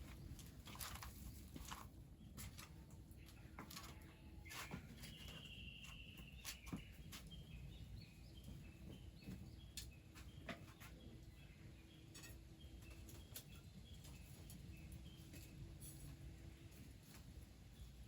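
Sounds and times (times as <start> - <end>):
bird whistling and chirping: 4.5 - 7.0.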